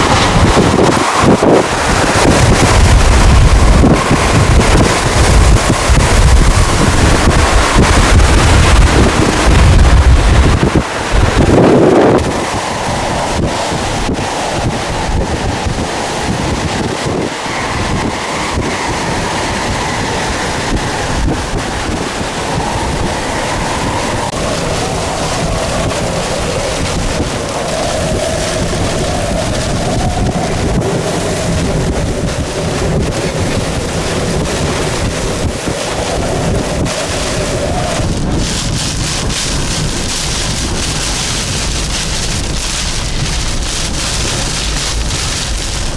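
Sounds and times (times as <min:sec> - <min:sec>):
hurricane winds roaring: 0:00.0 - 0:45.9
wind buffeting microphone: 0:00.0 - 0:45.9.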